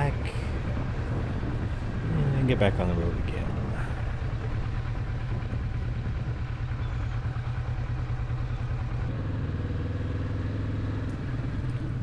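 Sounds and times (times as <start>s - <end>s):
motorcycle engine idling: 0.0s - 6.0s, 11.1s - 12.0s.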